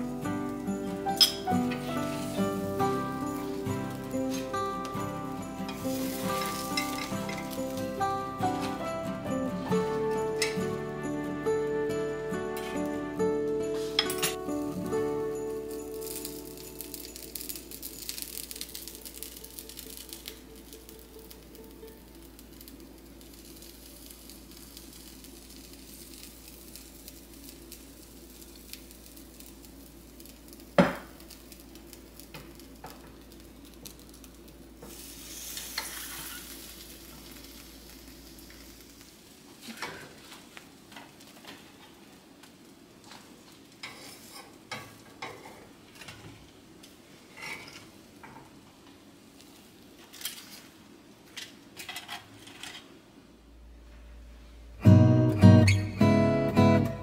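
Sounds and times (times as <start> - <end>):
batter sizzling in pan: 0.0 - 46.0, 46.7 - 51.7
metal tongs clinking: 1.1 - 1.8, 5.6 - 7.6, 13.9 - 14.4.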